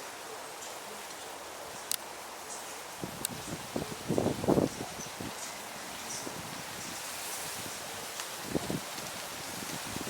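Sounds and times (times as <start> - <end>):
outdoor background hiss: 0.0 - 10.0.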